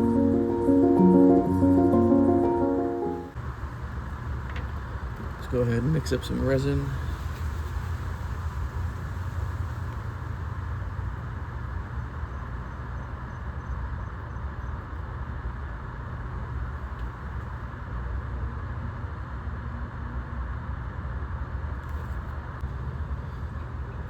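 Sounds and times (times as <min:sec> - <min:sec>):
background rumble and hiss: 0:03.4 - 0:13.3.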